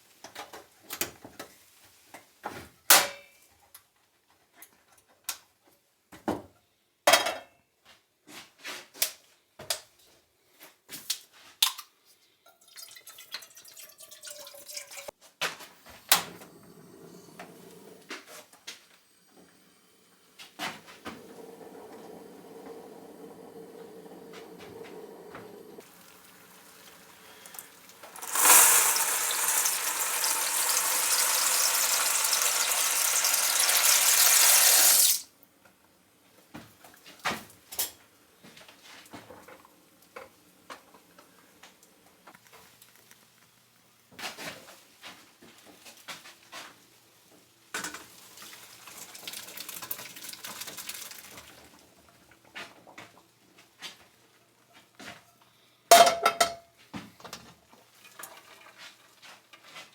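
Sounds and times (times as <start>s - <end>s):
cookware and utensils clinking: 11.6s - 15.1s, 26.6s - 35.2s, 47.8s - 48.3s, 55.9s - 56.7s
water pouring: 12.6s - 15.1s, 20.8s - 35.2s, 48.1s - 51.8s.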